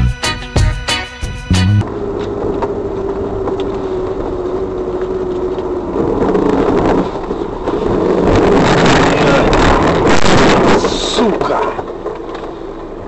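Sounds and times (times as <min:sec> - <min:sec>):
droning hum: 0:00.0 - 0:08.4
car engine and road noise: 0:00.0 - 0:13.0.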